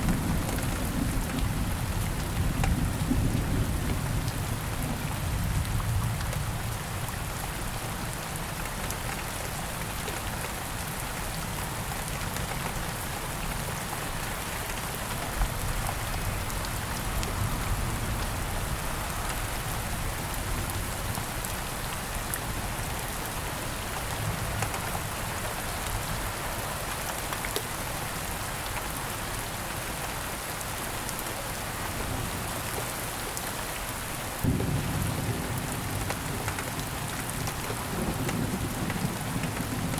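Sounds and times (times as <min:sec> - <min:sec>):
raindrop patter: 0:00.0 - 0:07.1, 0:24.0 - 0:25.9, 0:34.3 - 0:39.9
gentle rain hiss: 0:00.0 - 0:39.9
low thunder rumble: 0:34.4 - 0:37.0.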